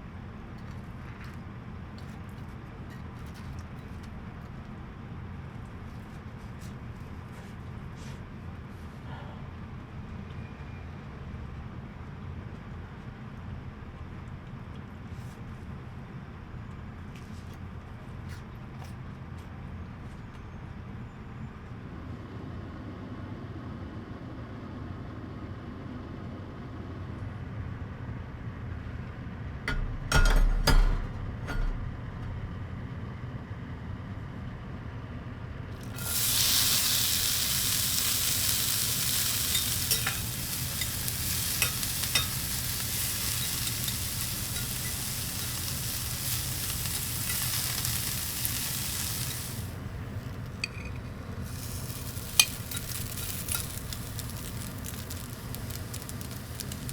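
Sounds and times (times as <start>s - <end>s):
food sizzling on charcoal grill: 35.8s - 56.9s.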